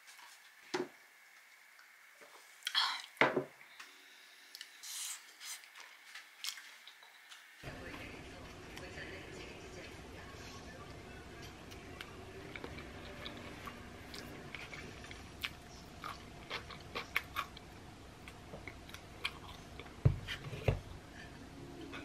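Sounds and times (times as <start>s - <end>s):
biting and chewing crunchy food: 11.8s - 20.0s.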